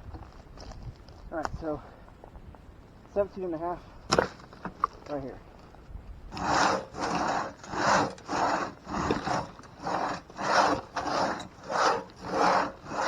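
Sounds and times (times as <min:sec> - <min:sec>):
crosscut saw rasping through wood: 0:06.3 - 0:13.0.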